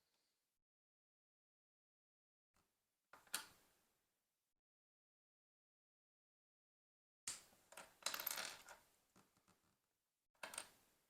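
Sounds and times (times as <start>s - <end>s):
plastic pieces clattering and clicking: 7.3s - 9.7s.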